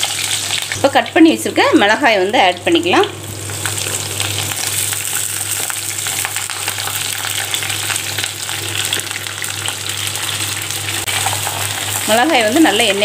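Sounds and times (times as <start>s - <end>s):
chillies sizzling in hot oil: 0.0s - 13.0s.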